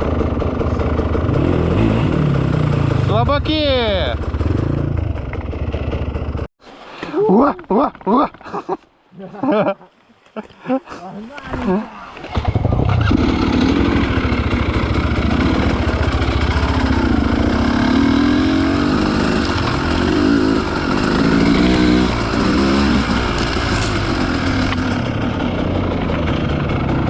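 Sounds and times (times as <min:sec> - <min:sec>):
two-stroke motorcycle revving: 0:00.0 - 0:06.5, 0:12.3 - 0:27.0.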